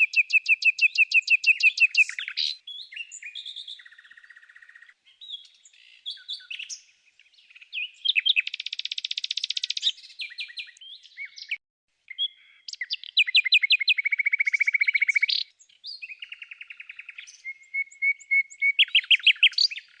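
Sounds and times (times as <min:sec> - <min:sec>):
songbird singing: 0:00.0 - 0:20.0.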